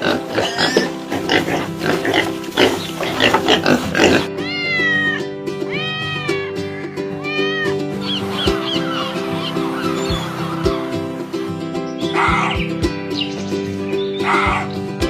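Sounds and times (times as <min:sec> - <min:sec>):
background music: 0:00.0 - 0:15.0
cat meowing: 0:04.4 - 0:09.2.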